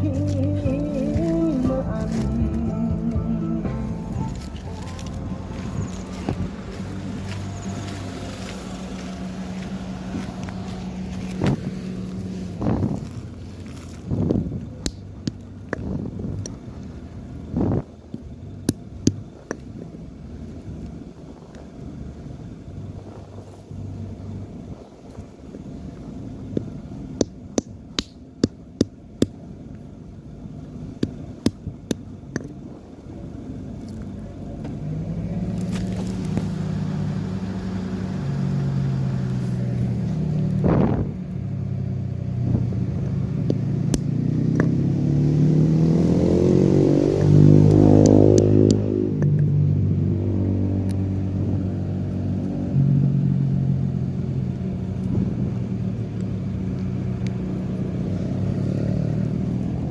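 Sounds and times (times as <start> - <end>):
vehicle engine revving: 0.0 - 27.6, 29.4 - 59.9.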